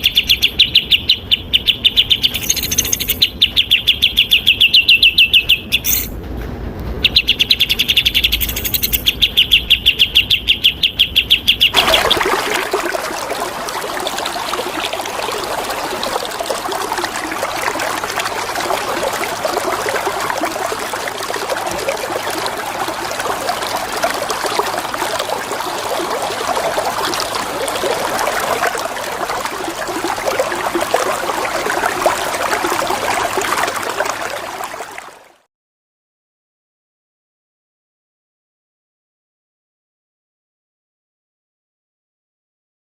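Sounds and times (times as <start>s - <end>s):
songbird rattling call: 0.0s - 6.1s, 7.0s - 11.8s
flowing water rushing: 11.7s - 35.4s.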